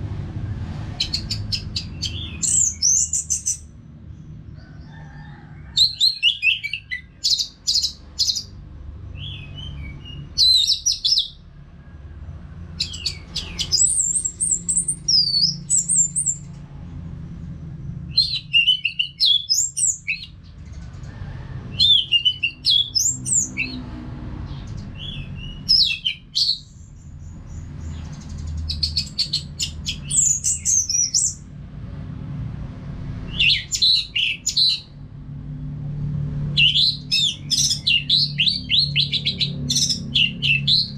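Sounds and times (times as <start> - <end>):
bird singing whistled notes: 1.0 - 3.7, 9.2 - 11.4, 12.8 - 16.4, 18.1 - 20.3, 25.0 - 27.0.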